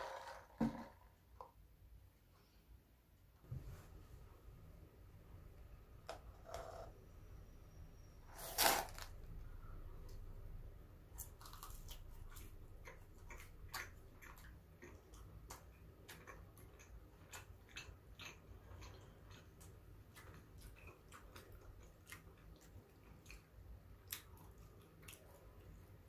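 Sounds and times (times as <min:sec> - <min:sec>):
chewing mouth clicks: 0:11.5 - 0:25.7.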